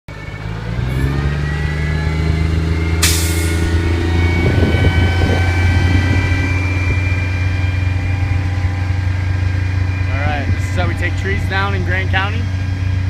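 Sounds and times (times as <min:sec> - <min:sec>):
crane engine droning: 0:00.1 - 0:13.0.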